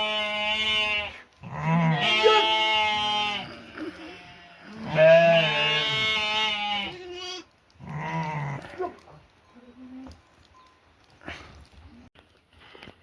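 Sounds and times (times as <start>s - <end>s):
goat bleating: 0.0s - 9.0s.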